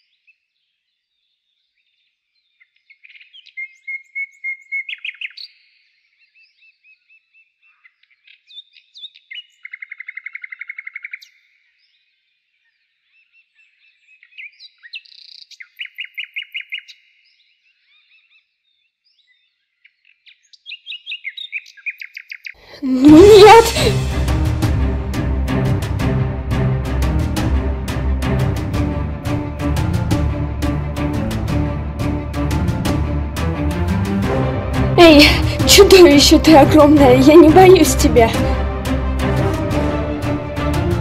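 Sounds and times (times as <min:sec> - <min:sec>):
songbirds singing: 0:00.0 - 0:22.6.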